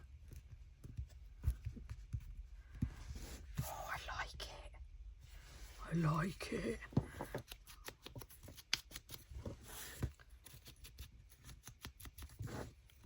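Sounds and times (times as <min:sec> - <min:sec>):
paper and card tapping and clicking: 0:07.2 - 0:09.3.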